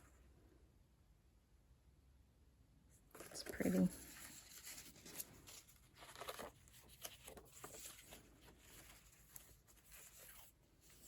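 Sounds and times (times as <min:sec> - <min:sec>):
paper pages turning: 0:03.1 - 0:11.0.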